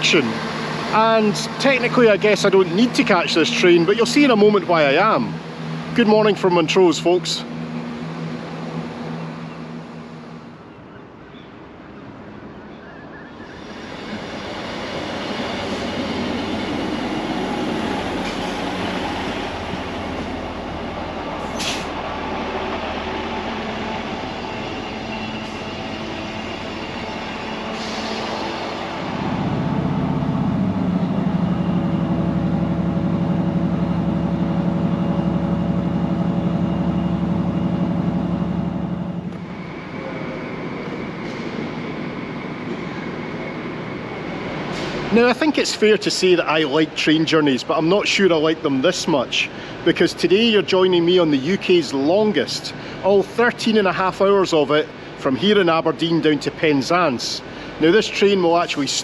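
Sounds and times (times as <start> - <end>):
low engine drone: 0.0 - 10.9, 13.6 - 46.1, 52.0 - 53.1
passenger train rumble: 0.0 - 59.0
high squeal: 12.8 - 19.7, 21.4 - 29.9, 39.4 - 45.5.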